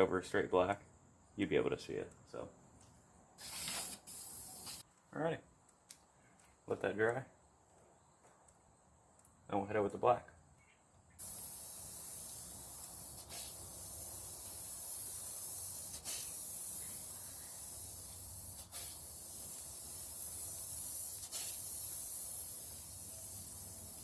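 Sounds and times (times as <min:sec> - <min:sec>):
spray paint hissing: 0:03.4 - 0:04.8, 0:11.2 - 0:24.0.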